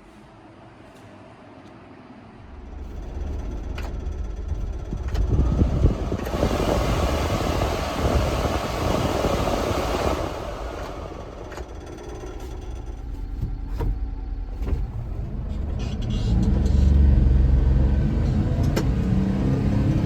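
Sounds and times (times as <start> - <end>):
truck engine running: 2.4 - 20.0.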